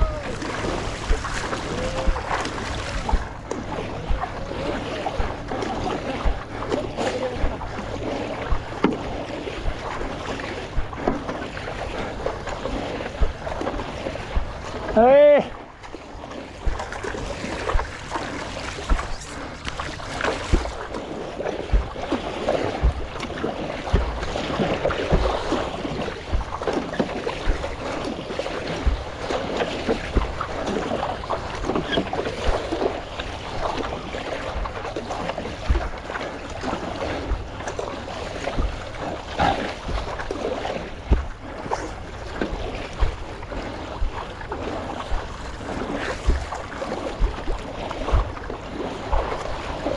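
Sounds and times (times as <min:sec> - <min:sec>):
low knocks: 0:00.0 - 0:04.4, 0:16.6 - 0:21.0, 0:21.7 - 0:22.0, 0:22.8 - 0:23.2, 0:41.0 - 0:43.4, 0:44.0 - 0:48.6
water splashing against paddleboard: 0:00.0 - 0:49.9
wind buffeting microphone: 0:00.0 - 0:49.9.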